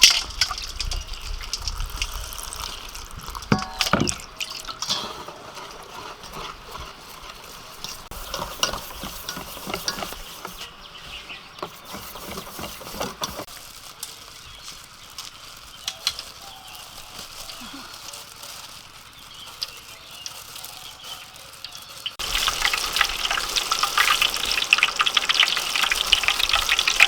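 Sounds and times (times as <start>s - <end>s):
utensil scraping a pan: 0.0s - 13.6s
food sizzling in a pan: 1.0s - 27.0s.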